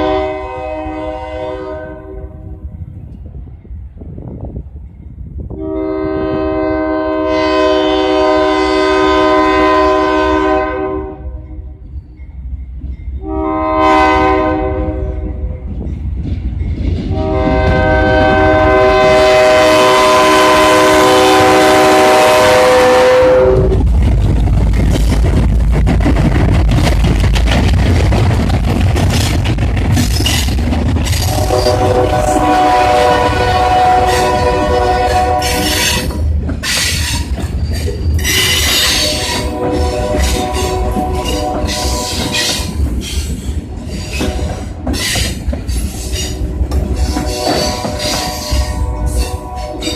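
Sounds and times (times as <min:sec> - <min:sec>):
train horn: 0:00.0 - 0:02.7, 0:05.5 - 0:11.8, 0:13.2 - 0:15.7, 0:17.1 - 0:23.8, 0:31.2 - 0:36.2, 0:38.3 - 0:42.9, 0:44.1 - 0:45.2, 0:46.1 - 0:49.9
train rumbling past: 0:00.0 - 0:49.9
wheels clacking over rail joints: 0:23.8 - 0:32.8, 0:35.4 - 0:49.9.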